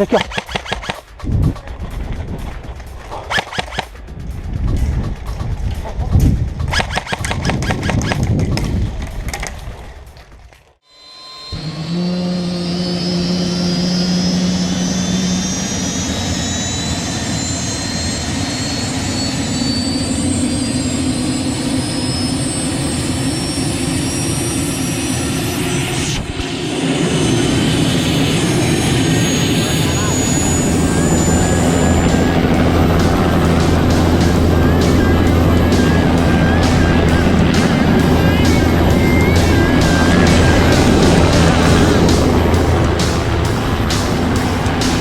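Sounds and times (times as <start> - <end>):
engine drone with whine: 0.0 - 10.3, 10.9 - 45.0
music: 0.9 - 7.0, 29.8 - 45.0.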